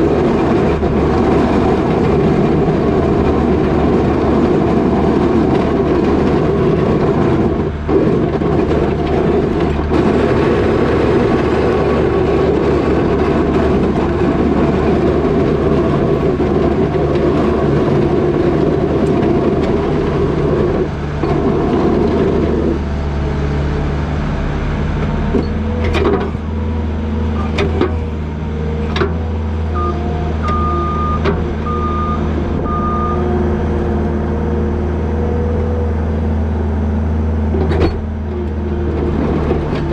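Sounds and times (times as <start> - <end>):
diesel engine running: 0.0 - 39.9
backup alarm beeping: 29.8 - 33.3.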